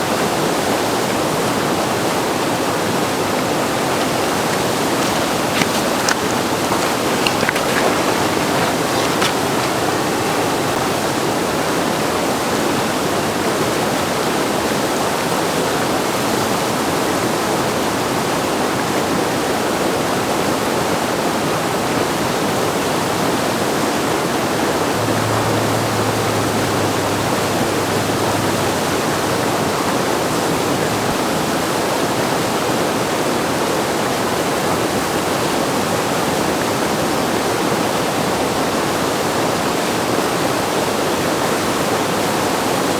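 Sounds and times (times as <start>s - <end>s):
whitewater rushing: 1.5s - 12.9s, 23.7s - 35.4s.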